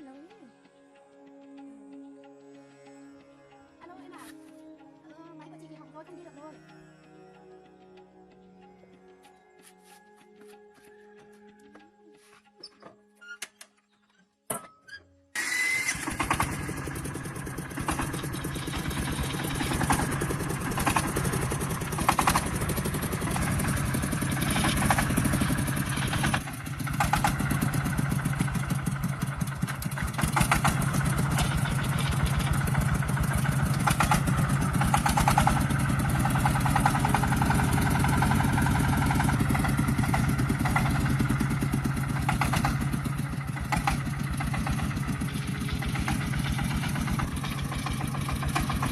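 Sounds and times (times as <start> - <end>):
tractor engine running: 15.4 - 48.9.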